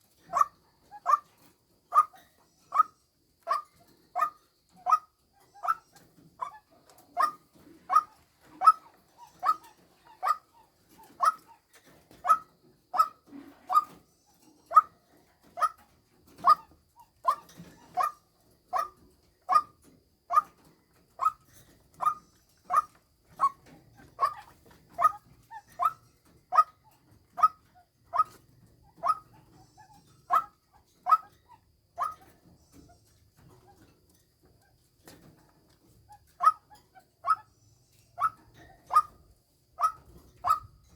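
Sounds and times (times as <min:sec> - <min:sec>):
bark-like bird call: 0:00.3 - 0:01.3, 0:01.9 - 0:11.6, 0:22.0 - 0:26.8, 0:29.0 - 0:31.3, 0:32.0 - 0:32.3, 0:36.4 - 0:37.5, 0:38.2 - 0:39.2, 0:39.8 - 0:40.8.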